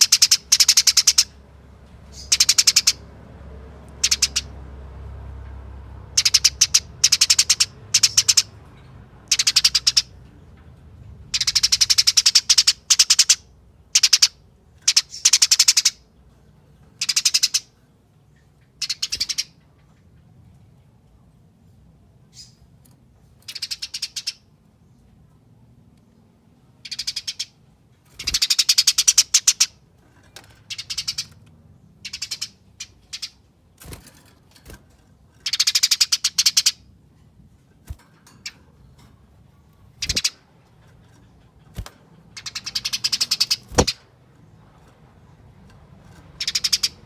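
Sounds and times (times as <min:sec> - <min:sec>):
sparrow chattering call: 0:00.0 - 0:01.4, 0:02.1 - 0:03.0, 0:04.0 - 0:04.6, 0:06.1 - 0:08.6, 0:09.2 - 0:10.2, 0:11.3 - 0:16.0, 0:17.0 - 0:17.7, 0:18.8 - 0:19.6, 0:23.5 - 0:24.4, 0:26.8 - 0:29.8, 0:30.7 - 0:31.4, 0:32.0 - 0:34.0, 0:35.4 - 0:36.9, 0:39.9 - 0:40.5, 0:41.5 - 0:44.1, 0:46.3 - 0:47.0.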